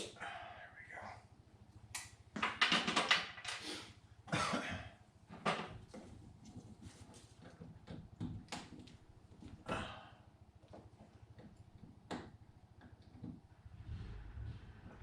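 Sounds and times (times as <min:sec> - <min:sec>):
tools knocking and clicking: 0:02.4 - 0:03.6.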